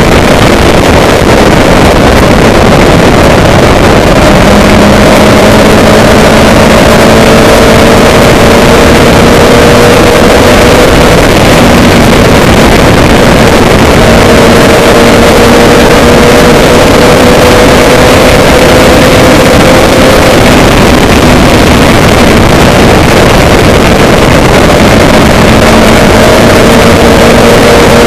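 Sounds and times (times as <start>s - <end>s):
engine-like drone: 0.0s - 28.0s
held humming tones: 0.0s - 28.0s.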